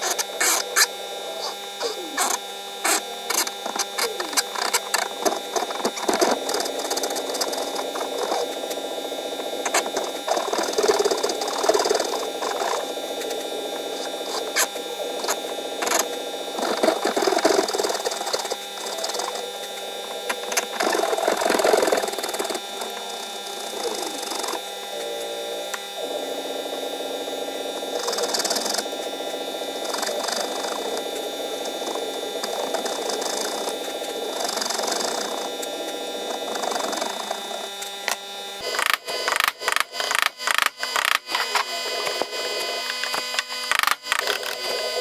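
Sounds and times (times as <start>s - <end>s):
scraping and rasping on wood: 0.0s - 24.7s.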